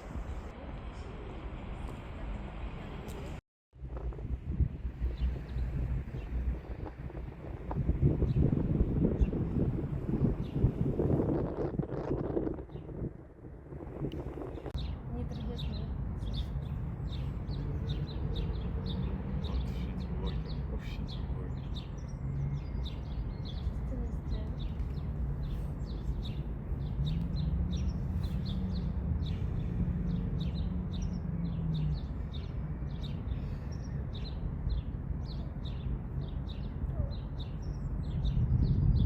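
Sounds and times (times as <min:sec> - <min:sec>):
small birds chirping: 0:14.5 - 0:39.0.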